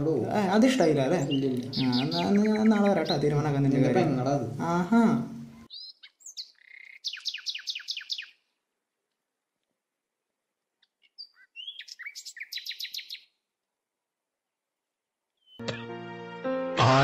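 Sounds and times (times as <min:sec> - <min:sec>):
small bird calling: 0:00.8 - 0:03.6, 0:05.4 - 0:08.6, 0:10.8 - 0:13.4, 0:15.4 - 0:15.6.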